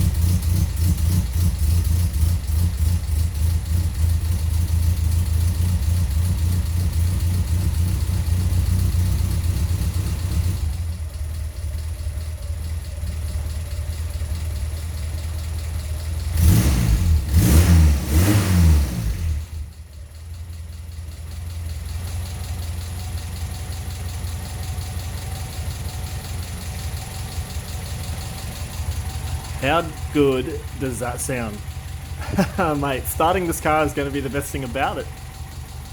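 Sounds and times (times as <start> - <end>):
car engine idling: 0.0 - 16.6, 19.1 - 35.9
engine revving: 16.3 - 19.6.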